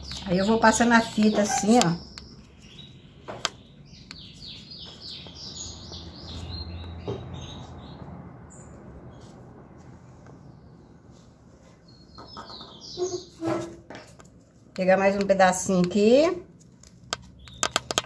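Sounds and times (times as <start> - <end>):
bird chirping: 0.0 - 9.3, 10.5 - 14.2, 17.2 - 18.0.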